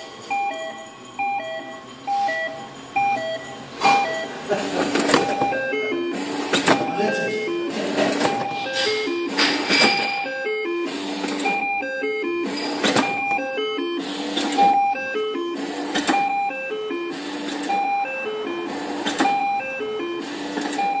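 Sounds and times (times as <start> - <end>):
electronic melody over steady beat: 5.1 - 20.4.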